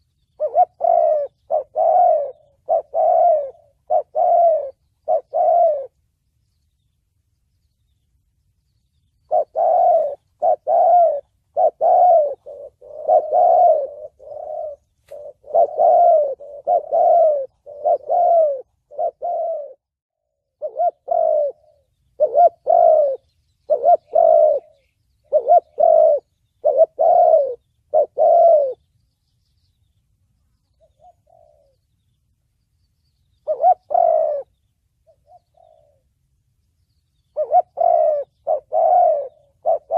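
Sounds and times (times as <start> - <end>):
dove cooing: 0.0 - 6.0, 9.2 - 28.9, 30.7 - 31.9, 33.3 - 36.2, 37.2 - 39.9.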